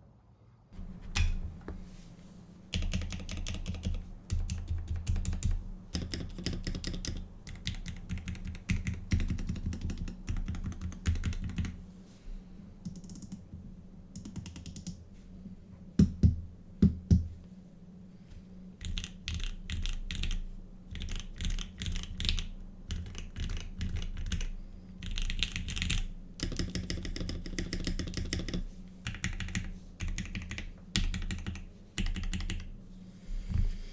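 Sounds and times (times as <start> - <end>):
mechanical keyboard typing: 2.7 - 11.8, 12.9 - 13.4, 14.2 - 15.0, 18.8 - 32.7.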